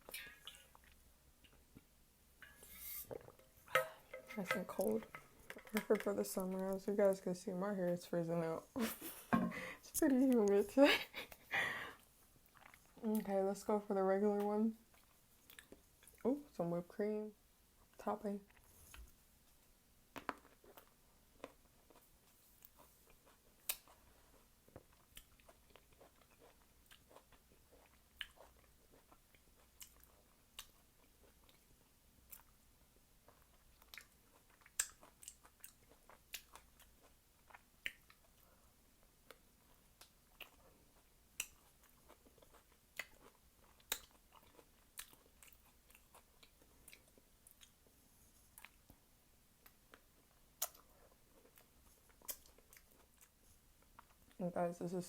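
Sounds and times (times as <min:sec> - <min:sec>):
person chewing wet mouth sounds: 0:12.4 - 0:13.3, 0:14.4 - 0:16.3, 0:22.6 - 0:47.9, 0:48.5 - 0:48.9, 0:49.6 - 0:54.4.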